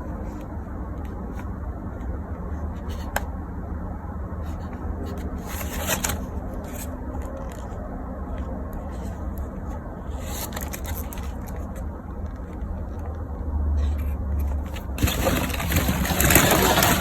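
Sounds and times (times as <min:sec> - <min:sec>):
plastic toys rustling clatter: 0:04.5 - 0:09.4, 0:10.1 - 0:13.1, 0:13.8 - 0:17.0.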